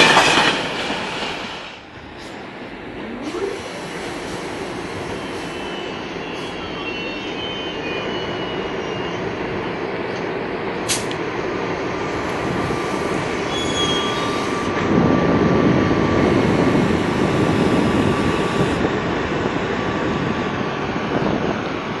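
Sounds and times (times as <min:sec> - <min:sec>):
train wheels rumbling on rails: 0:00.0 - 0:22.0
high wheel squeal: 0:03.3 - 0:09.8, 0:13.4 - 0:14.7.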